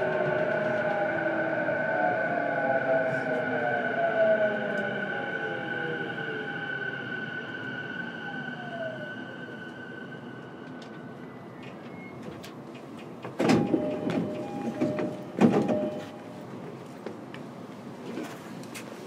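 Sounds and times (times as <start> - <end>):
train doors sliding open: 10.6 - 19.0
two-tone door chime: 13.4 - 16.3.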